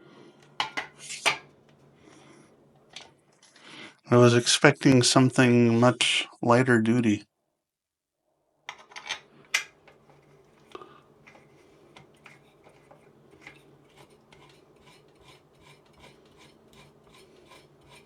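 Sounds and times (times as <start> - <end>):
faint ticks and scraping: 9.8 - 18.0.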